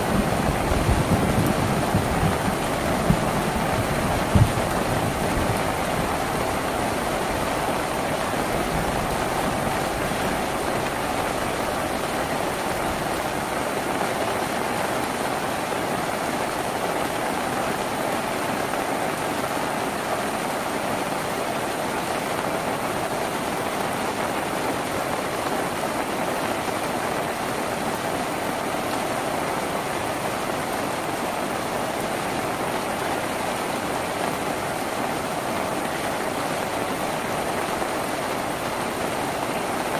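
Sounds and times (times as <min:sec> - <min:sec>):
rain drumming on a tin roof: 0:00.0 - 0:39.9.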